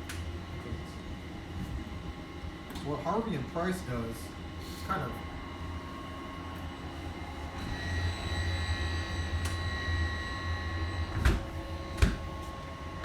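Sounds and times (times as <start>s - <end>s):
ventilation fans humming: 0.0s - 13.0s
thin whining tones: 6.0s - 12.0s.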